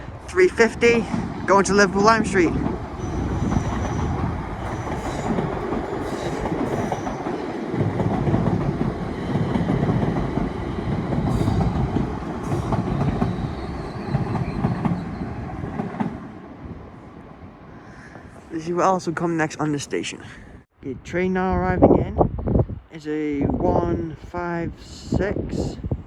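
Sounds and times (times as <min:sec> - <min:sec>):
train wheels rumbling on rails: 0:00.0 - 0:16.8
rail joint clicks: 0:01.1 - 0:16.3.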